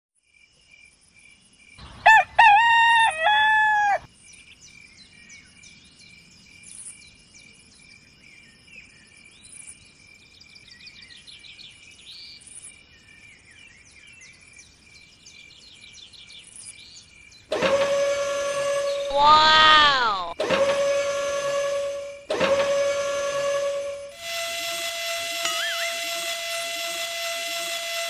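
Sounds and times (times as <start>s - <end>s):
rooster crowing: 2.0s - 4.1s, 19.0s - 20.4s.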